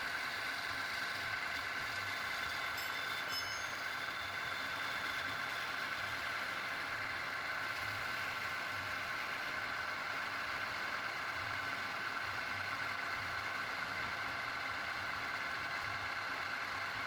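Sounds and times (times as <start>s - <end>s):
machine running: 1.8s - 7.8s.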